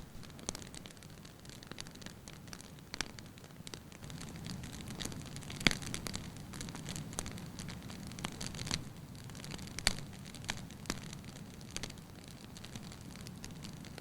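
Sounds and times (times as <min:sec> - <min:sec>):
burning logs crackling and popping: 0:00.0 - 0:14.0
low rumble of flames: 0:00.0 - 0:14.0.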